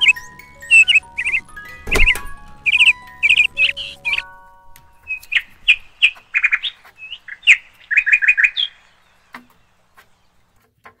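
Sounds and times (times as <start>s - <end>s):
bird chirping and trilling: 0.0s - 10.6s.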